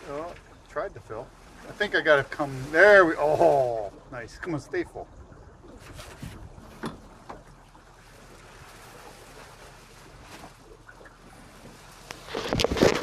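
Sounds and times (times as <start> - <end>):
water noise: 0.0 - 13.0
wind: 0.0 - 13.0
rustling and knocks: 5.8 - 7.5, 11.6 - 13.0.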